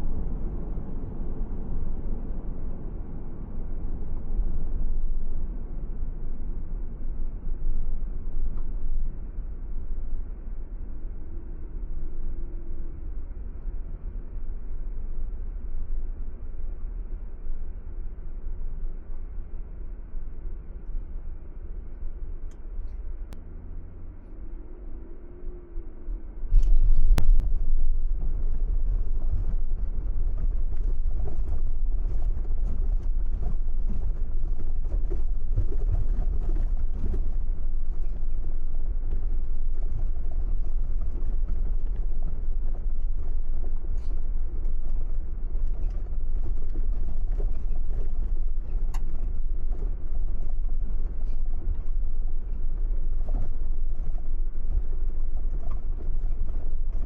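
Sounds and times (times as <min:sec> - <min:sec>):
car road rumble: 0:00.0 - 0:57.0.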